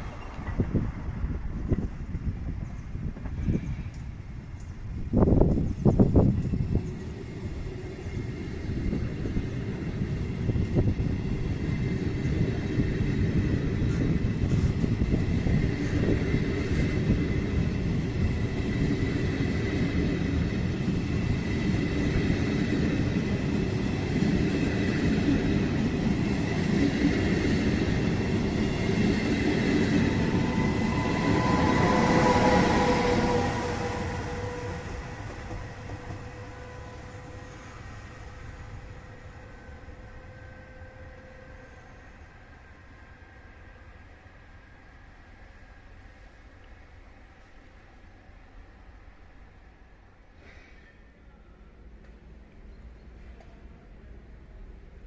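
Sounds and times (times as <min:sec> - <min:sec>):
electric locomotive whine: 0:00.0 - 0:55.0
train wheels clattering on rails: 0:13.2 - 0:36.6.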